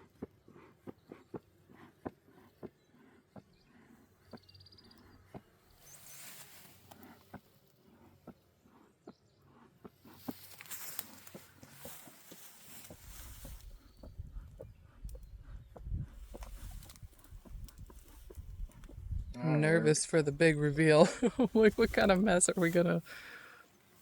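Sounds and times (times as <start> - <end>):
rustling: 10.1 - 13.9, 20.1 - 24.0.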